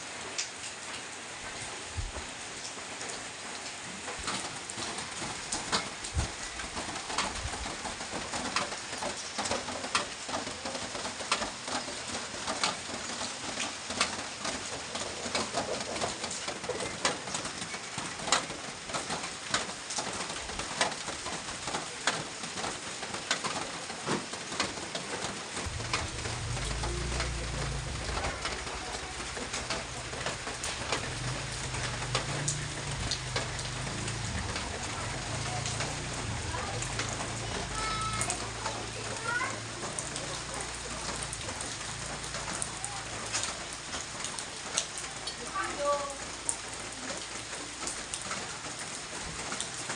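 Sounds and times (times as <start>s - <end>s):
heavy rain falling: 0.0s - 49.9s
drops and drips hitting a surface: 0.4s - 49.9s
low uneven sound: 25.7s - 37.8s.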